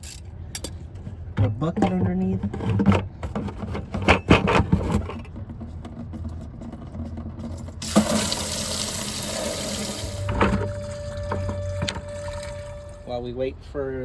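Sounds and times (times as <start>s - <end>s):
liquid pouring into a bucket: 7.8s - 13.0s.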